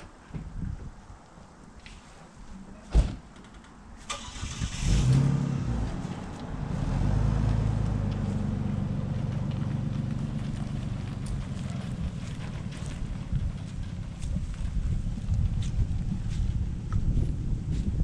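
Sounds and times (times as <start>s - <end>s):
engine starting and idling: 4.0s - 6.3s.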